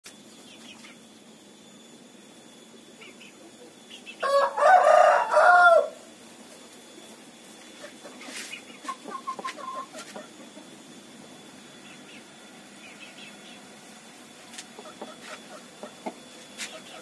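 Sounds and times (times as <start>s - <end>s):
rooster crowing: 4.2s - 6.1s.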